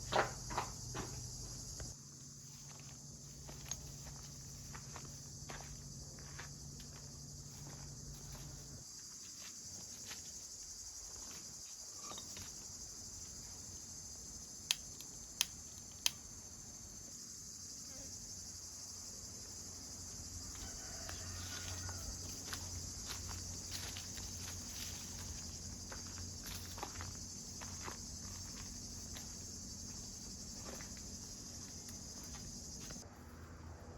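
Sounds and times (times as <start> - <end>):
crickets chirring: 0.0 - 33.9.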